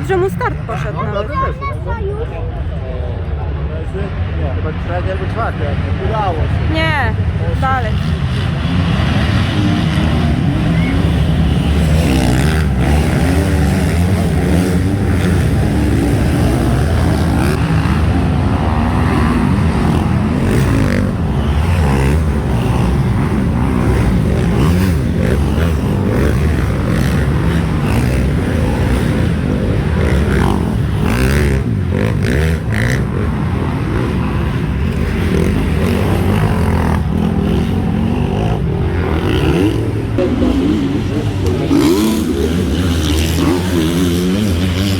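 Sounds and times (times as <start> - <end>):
motocross bikes revving: 0.0 - 44.9.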